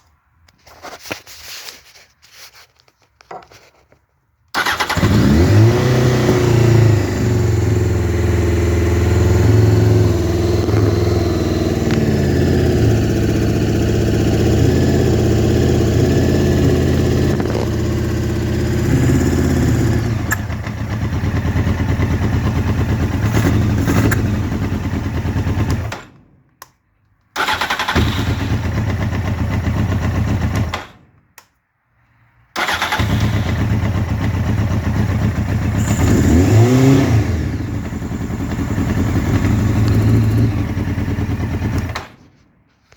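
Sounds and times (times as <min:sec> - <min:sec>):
motorcycle engine running: 0:04.6 - 0:25.9, 0:28.0 - 0:30.7, 0:32.7 - 0:42.0.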